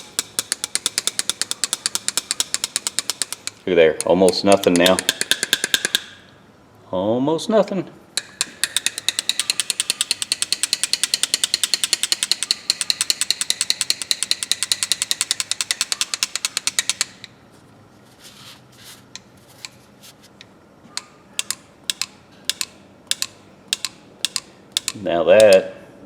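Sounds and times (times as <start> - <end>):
pliers clicking: 0.0 - 6.1, 8.2 - 17.3, 21.4 - 25.6.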